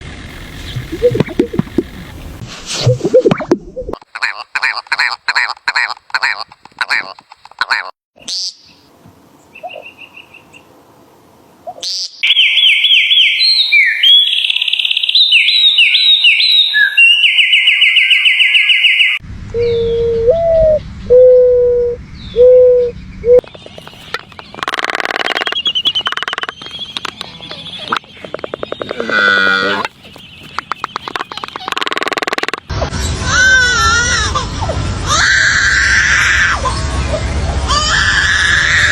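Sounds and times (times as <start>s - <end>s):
bird hooting: 0.6s - 2.0s
bird clicking and buzzing: 23.4s - 29.2s, 29.8s - 32.7s.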